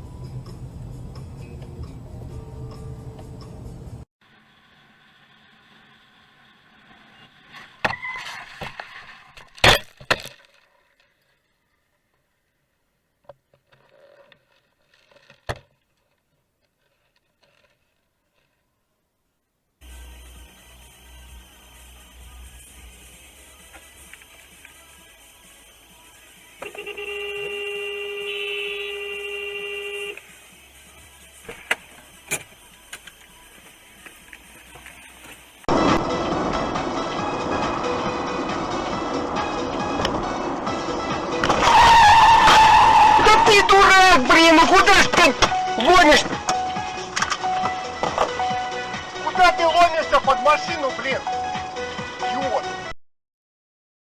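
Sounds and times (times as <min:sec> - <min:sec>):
car horn blast: 0:26.6 - 0:30.2.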